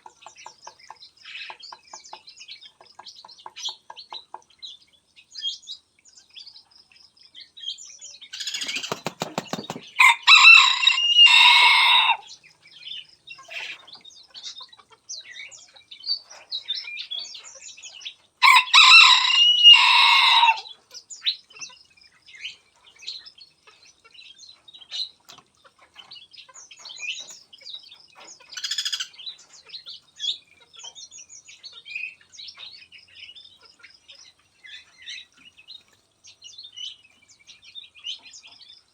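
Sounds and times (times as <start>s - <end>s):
small birds chirping: 0.0s - 38.9s
wings flapping: 8.5s - 10.8s
rooster crowing: 10.0s - 12.3s, 18.4s - 20.7s.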